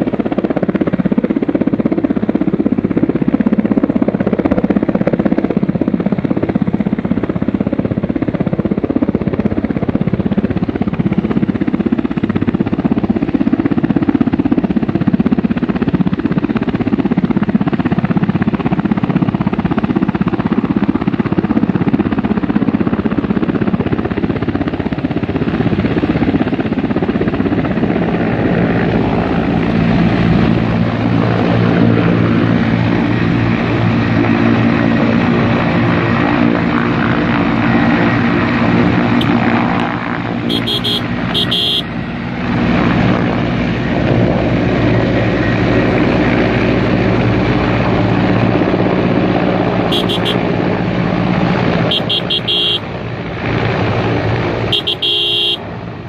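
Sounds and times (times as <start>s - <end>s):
loud engine drone: 26.6s - 56.0s.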